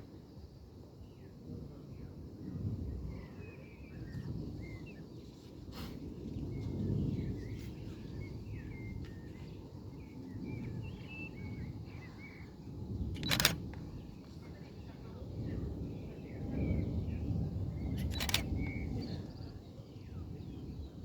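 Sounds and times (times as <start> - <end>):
small birds chirping: 6.3 - 21.0
short click: 13.2 - 13.6, 18.0 - 18.5.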